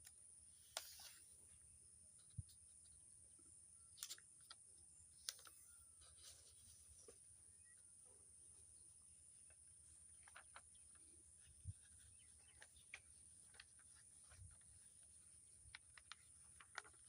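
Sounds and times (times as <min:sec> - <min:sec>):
faint high-pitched whine: 0:00.0 - 0:17.0
paper crinkling and folding: 0:09.4 - 0:17.0.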